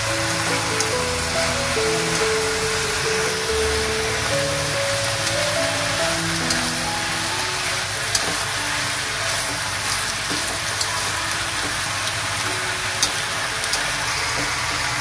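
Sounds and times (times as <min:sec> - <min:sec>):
vegetables sizzling in a wok: 0:00.0 - 0:15.0
chopsticks clicking against pan: 0:00.3 - 0:01.0.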